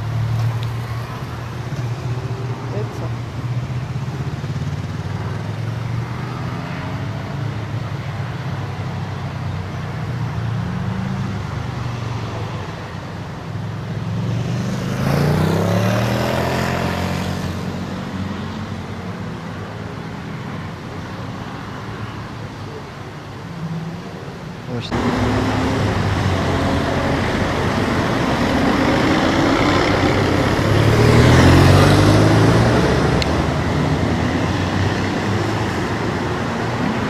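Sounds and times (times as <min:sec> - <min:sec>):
car engines running: 0:00.0 - 0:37.0
vehicle passing by: 0:13.9 - 0:18.7, 0:24.7 - 0:37.0.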